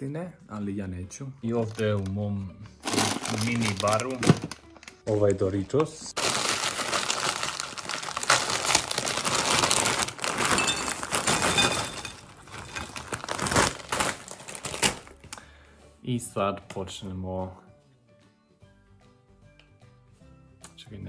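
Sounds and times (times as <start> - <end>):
foil chip bag crinkling: 2.8 - 15.2
chips tumbling into ceramic bowl: 10.3 - 13.1.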